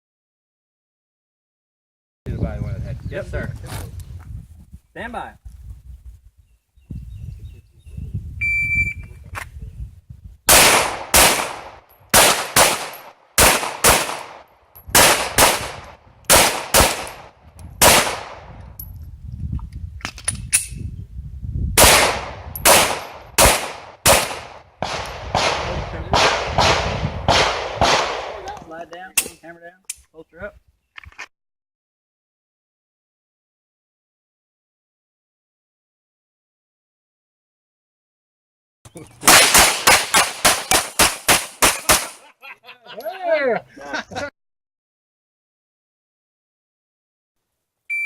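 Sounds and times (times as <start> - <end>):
shot timer beep: 8.4 - 9.0
pistol shots: 10.5 - 18.5, 21.8 - 28.5, 39.2 - 42.2.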